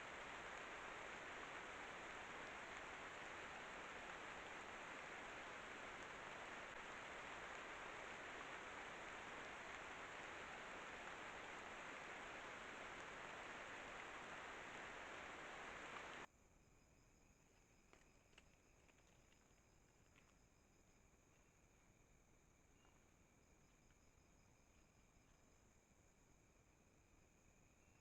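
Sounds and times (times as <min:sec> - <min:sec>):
steady rain falling: 0:00.0 - 0:16.3.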